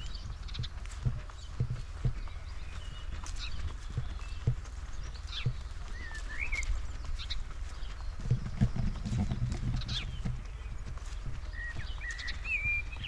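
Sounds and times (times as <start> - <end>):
footsteps on forest path: 0.0 - 13.0
small birds chirping: 0.0 - 13.0.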